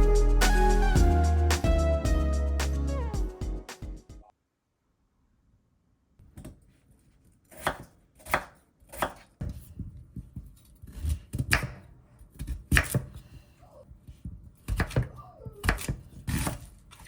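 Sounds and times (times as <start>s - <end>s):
knife chopping on cutting board: 7.5s - 9.6s.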